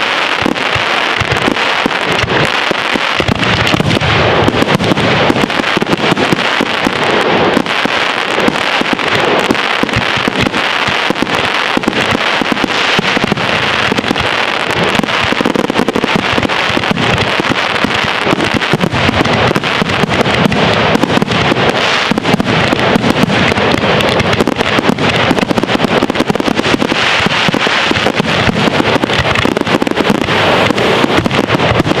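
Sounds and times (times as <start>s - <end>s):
fireworks bangs and crackling: 0.0s - 32.0s.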